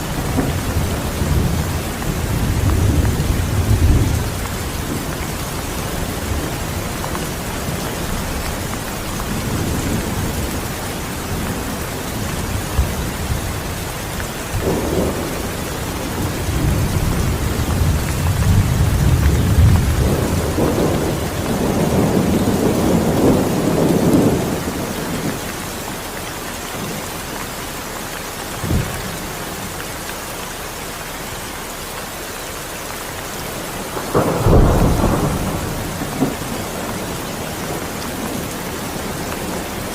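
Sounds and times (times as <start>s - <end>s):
rolling thunder: 0.0s - 25.4s, 33.8s - 39.9s
steady rain: 0.0s - 39.9s
sharp thunder crack: 34.0s - 38.4s.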